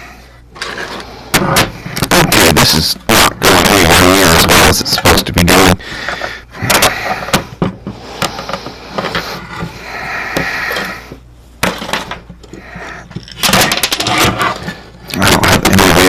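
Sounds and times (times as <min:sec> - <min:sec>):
plastic helmet rubbing and scraping: 0:08.2 - 0:09.8.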